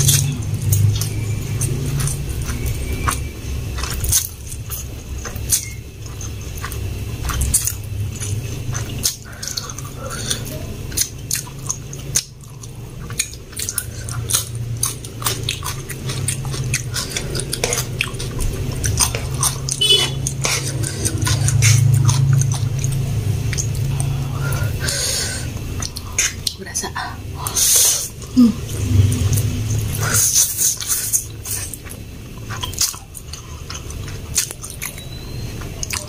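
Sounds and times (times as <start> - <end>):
wet mouth clicks and smacks: 0.0 - 24.2, 25.6 - 26.6
chewing and biting food: 0.0 - 26.7, 28.9 - 36.0
steady low hum: 0.0 - 36.0.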